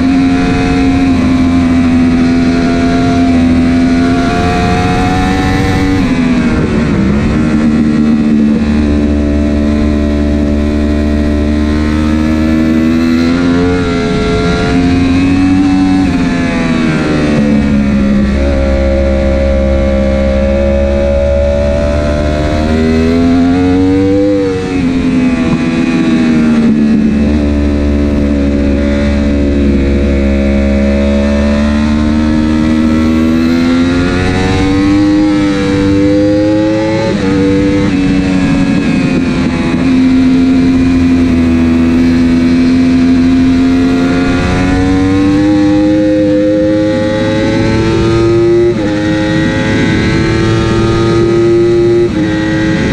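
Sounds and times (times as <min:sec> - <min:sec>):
motorbike engine at racing speed: 0:00.0 - 0:52.9.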